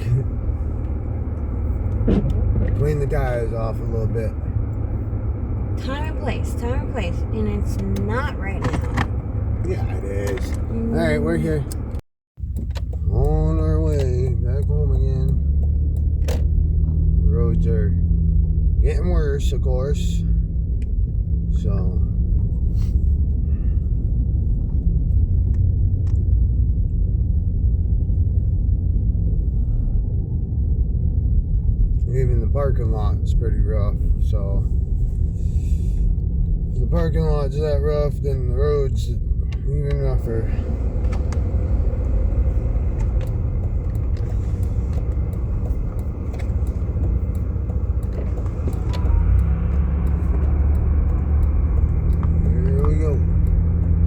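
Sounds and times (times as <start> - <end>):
car cabin rumble on rough snow: 0.0 - 17.6, 31.6 - 54.0
low engine hum: 0.0 - 54.0
small clicks: 41.0 - 54.0.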